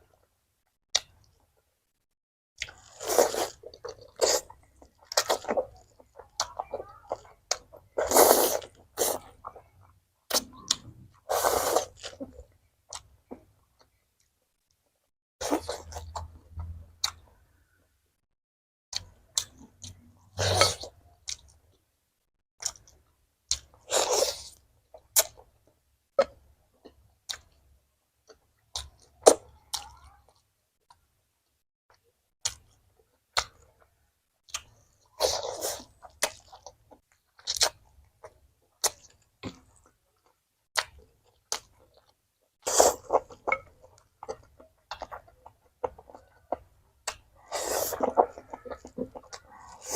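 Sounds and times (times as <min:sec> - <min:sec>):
biting and chewing: 0:34.4 - 0:49.9.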